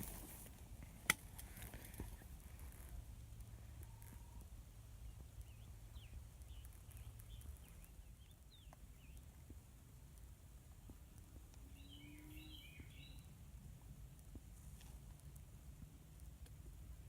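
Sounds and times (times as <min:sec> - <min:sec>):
faint bird chirps: 0:11.6 - 0:13.4.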